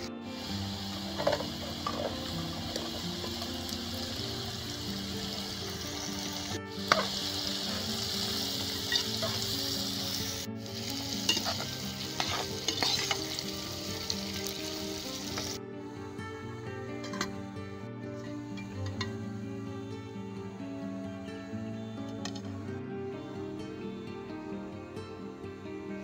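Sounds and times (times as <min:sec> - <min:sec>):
vegetables sizzling in oil: 0:00.0 - 0:15.6
metal spatula scraping pot: 0:08.8 - 0:09.6, 0:11.2 - 0:13.4.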